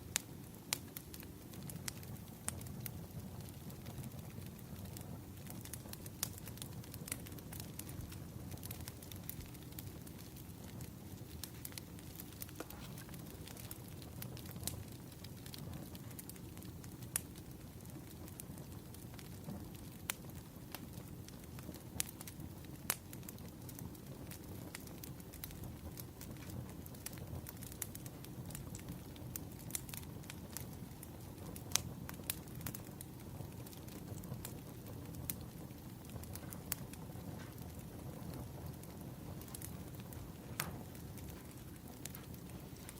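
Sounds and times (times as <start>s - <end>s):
wood fire crackling: 0.0s - 42.9s
sharp pops and snaps: 8.6s - 16.4s, 39.4s - 42.9s.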